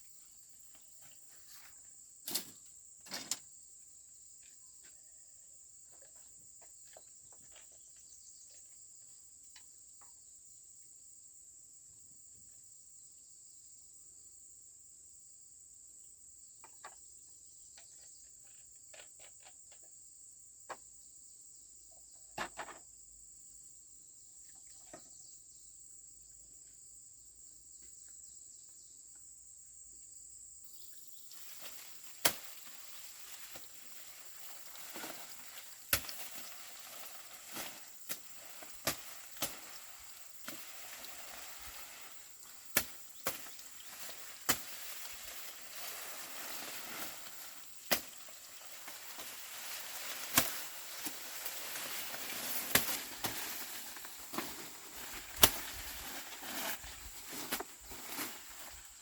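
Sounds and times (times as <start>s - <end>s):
corn stalks and leaves rustling: 0.0s - 3.5s, 30.7s - 59.0s
corn stalks snapping: 2.3s - 2.6s, 31.4s - 58.8s
insect trilling: 30.6s - 59.0s.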